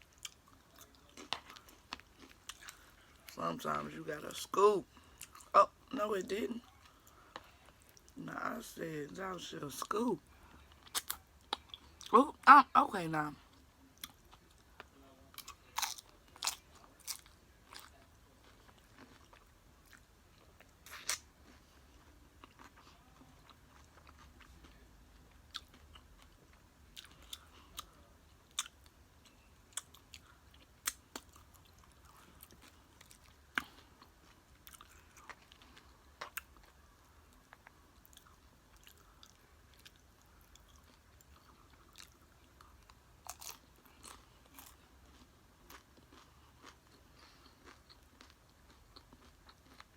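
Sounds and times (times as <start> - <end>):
chewing crunchy chips: 0.0 - 5.5, 10.3 - 12.1, 13.4 - 49.9.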